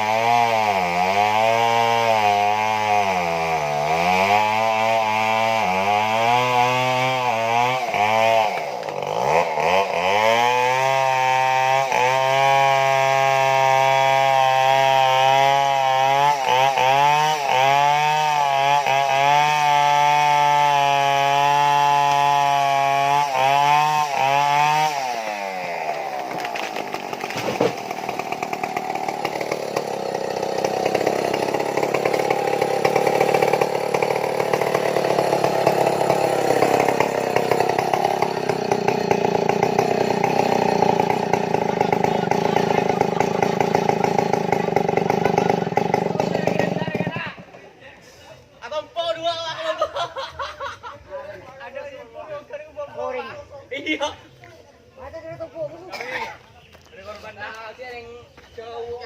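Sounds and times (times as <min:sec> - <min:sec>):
chainsaw cutting tree trunk: 0:00.0 - 0:47.6.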